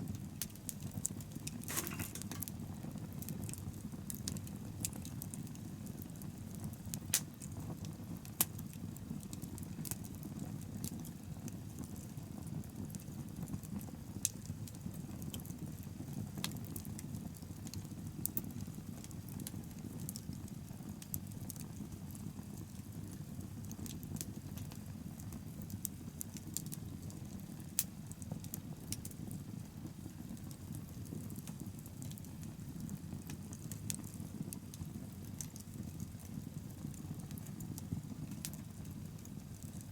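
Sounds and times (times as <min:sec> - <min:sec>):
bonfire rumble: 0:00.0 - 0:39.9
wood crackling and popping: 0:00.1 - 0:39.9.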